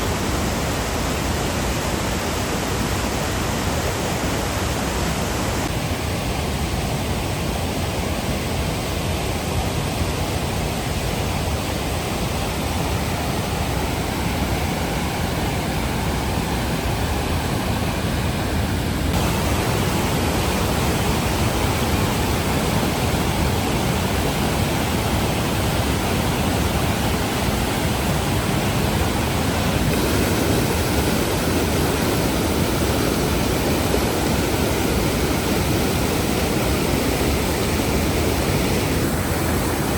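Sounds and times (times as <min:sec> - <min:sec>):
rushing mountain water: 0:00.0 - 0:39.9.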